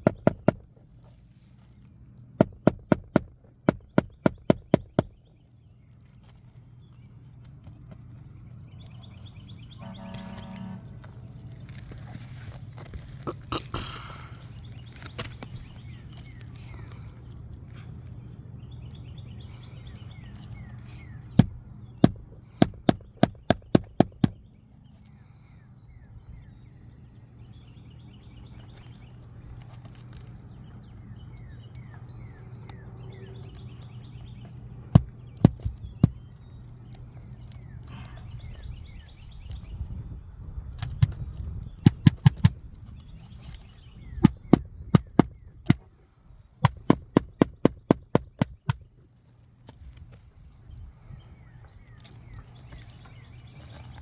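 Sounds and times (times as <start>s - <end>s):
sharp knocks: 0.0s - 0.7s, 2.4s - 5.2s, 21.4s - 24.4s, 35.0s - 36.2s, 41.8s - 42.6s, 44.2s - 45.9s, 46.6s - 48.8s
birds chirping: 0.0s - 54.0s.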